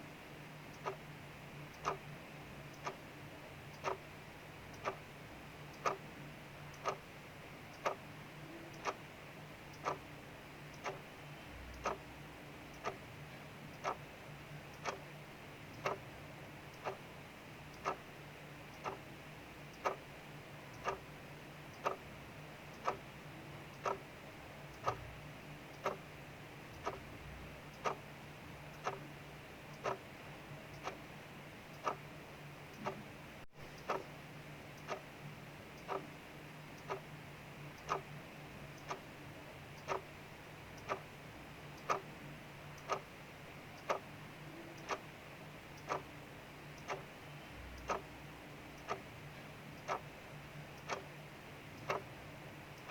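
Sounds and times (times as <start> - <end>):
clock ticking: 0.6 - 52.9.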